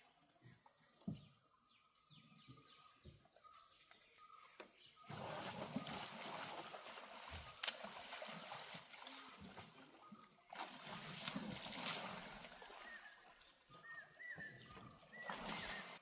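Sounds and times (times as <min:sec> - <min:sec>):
water splashing and trickling: 0:03.4 - 0:16.0.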